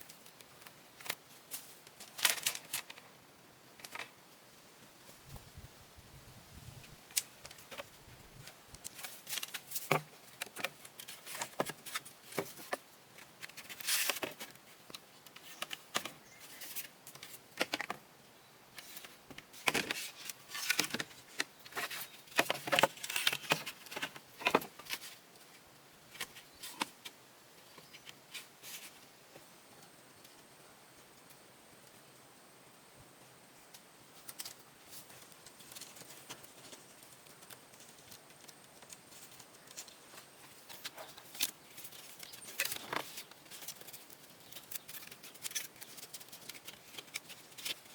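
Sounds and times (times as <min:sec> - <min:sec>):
objects being handled: 0:07.1 - 0:18.0, 0:18.7 - 0:25.2, 0:34.2 - 0:47.9.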